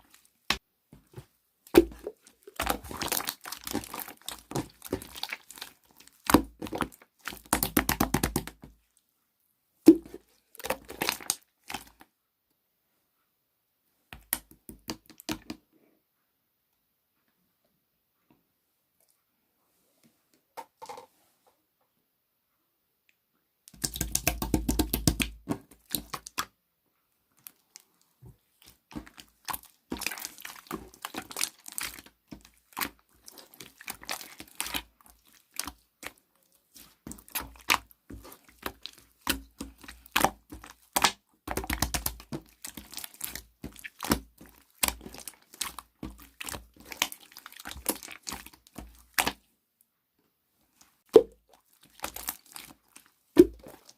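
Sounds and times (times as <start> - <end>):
slime squished by hand: 0.1 - 8.6, 9.9 - 12.0, 23.7 - 26.5, 28.6 - 49.5, 51.0 - 53.9.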